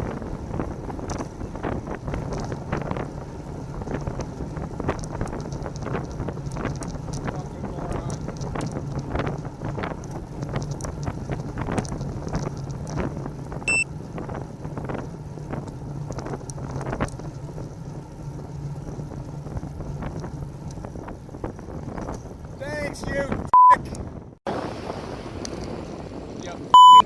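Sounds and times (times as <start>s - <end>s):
wind buffeting microphone: 0.0s - 26.8s
road and traffic rumble: 0.0s - 27.0s
short high-pitched beep: 23.6s - 23.8s, 26.8s - 27.0s.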